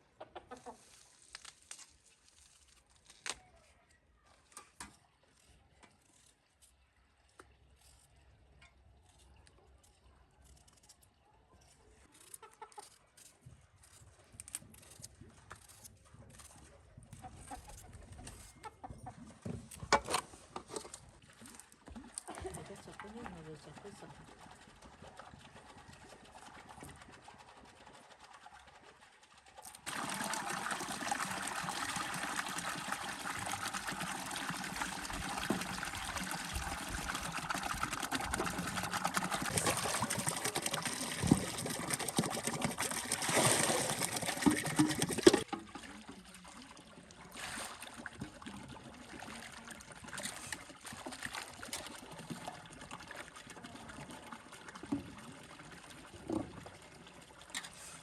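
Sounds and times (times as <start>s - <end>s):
water pouring: 20.6s - 58.0s.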